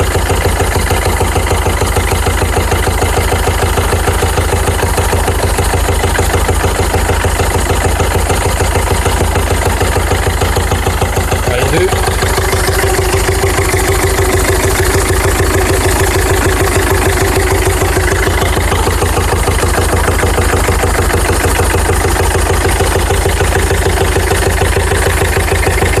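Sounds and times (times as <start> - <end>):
diesel engine idling: 0.0 - 26.0
air filter housing noise: 7.1 - 26.0.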